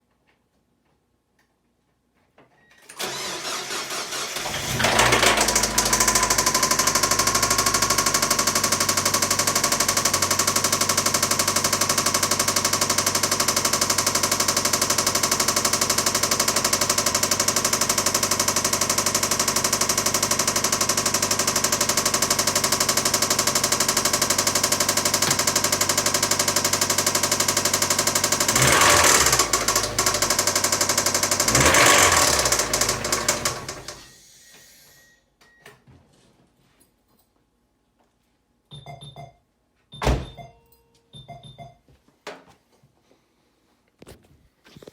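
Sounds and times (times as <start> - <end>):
engine running with fast knock: 4.5 - 34.1.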